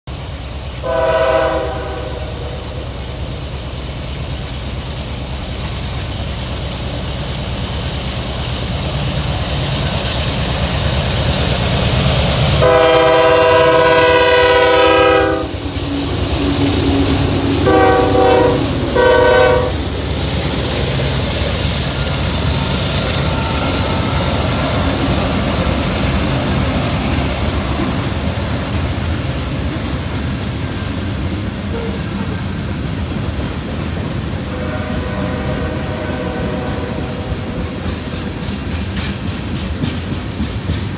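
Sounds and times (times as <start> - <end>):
diesel locomotive engines rumbling: 0.0 - 40.9
train wheels on rails: 0.1 - 40.9
train air horn blasts: 0.8 - 2.8, 12.6 - 15.6, 17.6 - 19.9, 23.2 - 24.9, 34.4 - 37.9.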